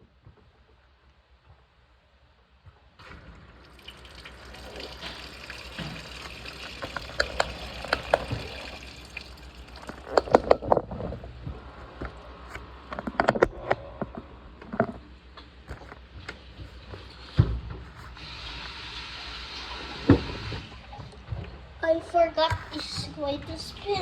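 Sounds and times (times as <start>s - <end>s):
washing machine filling with water: 3.0s - 10.7s, 15.9s - 24.0s.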